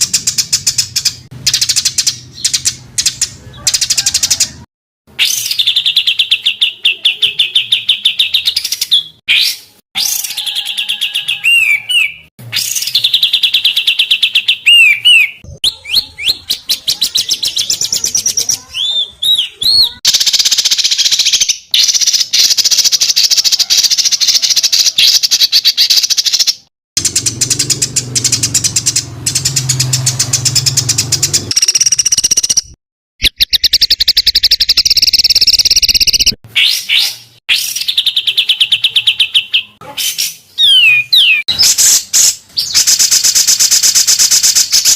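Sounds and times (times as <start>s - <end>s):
sharp bird chip notes: 0.0s - 18.7s, 23.9s - 44.9s
songbirds trilling: 0.0s - 26.1s, 27.0s - 32.7s, 33.3s - 44.9s.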